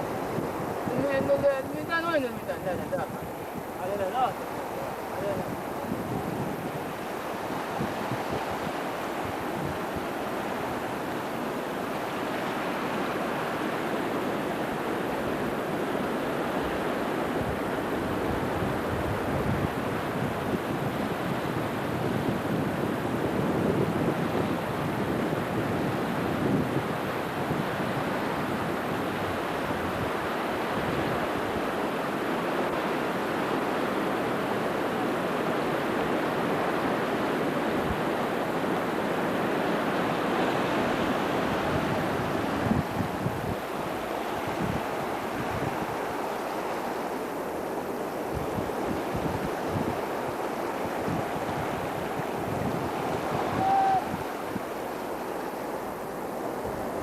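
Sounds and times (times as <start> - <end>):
floodwater rushing: 0.0 - 57.0
wind buffeting microphone: 0.0 - 57.0.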